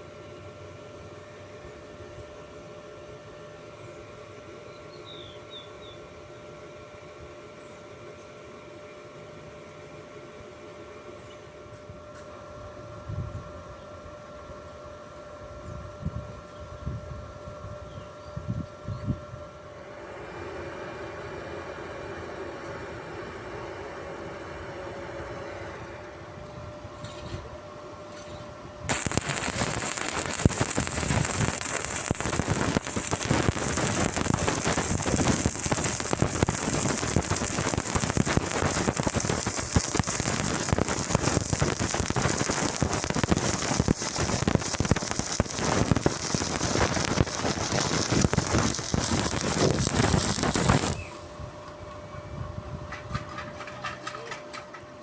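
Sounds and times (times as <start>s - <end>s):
welding arc sizzling crackle: 28.9s - 51.4s.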